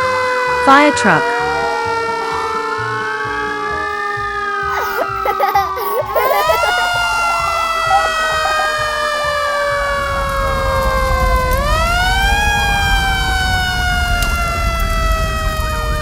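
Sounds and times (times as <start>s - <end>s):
cartoon fire truck siren wailing: 0.4s - 16.0s.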